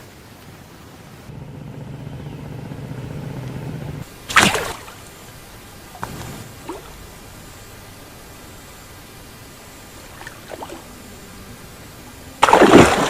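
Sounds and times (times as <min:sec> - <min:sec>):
water splashing: 0:00.0 - 0:08.0, 0:09.0 - 0:11.5, 0:12.3 - 0:13.0
low steady hum: 0:00.0 - 0:13.0
faint small splashes: 0:04.3 - 0:05.1, 0:10.0 - 0:10.9, 0:12.4 - 0:13.0.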